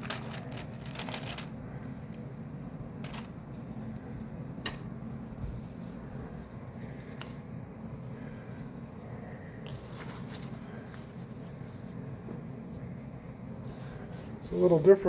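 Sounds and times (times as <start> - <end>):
paper and packaging rustling: 0.0 - 2.2, 3.0 - 4.8, 9.7 - 12.0
low steady hum: 0.0 - 15.0.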